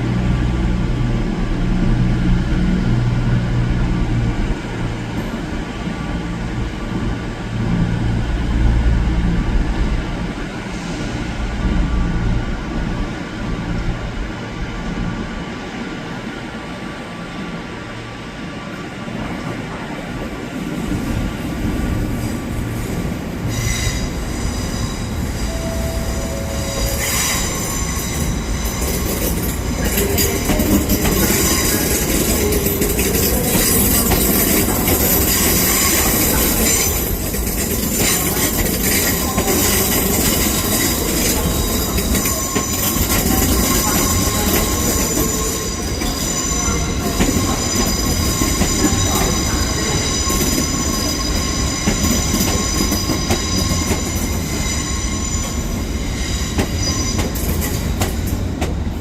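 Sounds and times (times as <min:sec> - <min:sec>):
train rumbling on rails: 0:00.0 - 0:59.0
train wheel squeal: 0:23.4 - 0:58.6.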